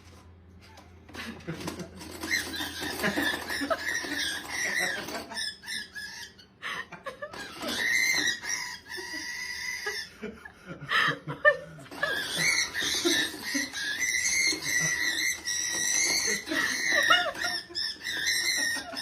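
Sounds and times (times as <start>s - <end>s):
parrot screeching and squawking: 2.0s - 6.6s, 7.3s - 10.2s, 11.9s - 19.0s.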